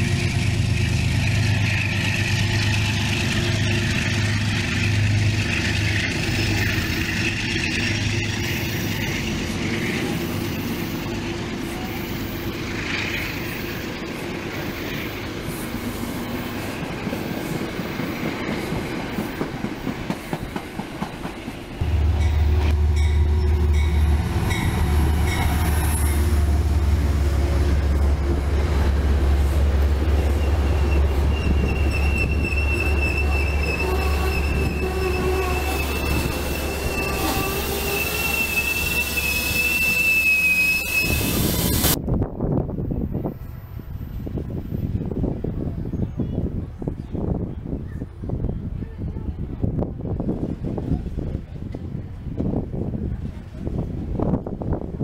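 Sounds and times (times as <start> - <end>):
train cars rumbling on track: 0.0 - 55.0
high wheel squeal: 30.0 - 42.0.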